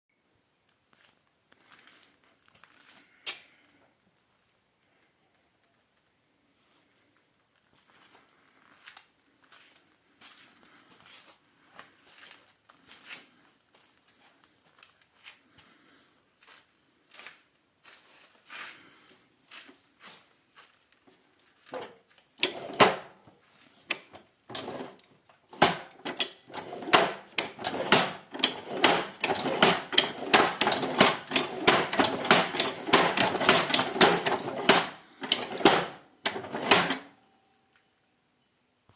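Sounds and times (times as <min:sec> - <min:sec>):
clutch mechanism clattering: 0:22.4 - 0:23.2, 0:23.9 - 0:37.2.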